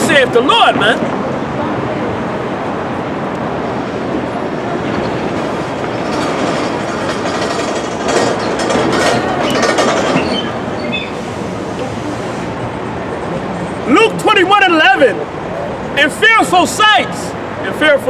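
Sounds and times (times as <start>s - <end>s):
train rumbling on rails: 0.0s - 14.2s
wheel squeals: 4.8s - 12.5s.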